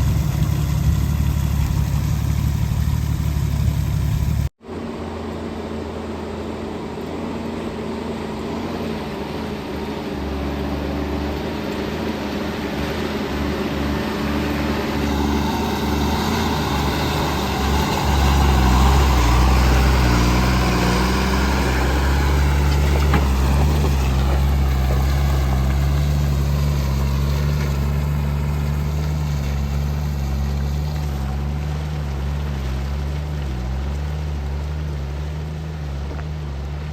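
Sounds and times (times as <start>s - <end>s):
heavy diesel engine running: 0.0s - 5.1s, 5.7s - 36.9s
high whine: 13.2s - 23.4s.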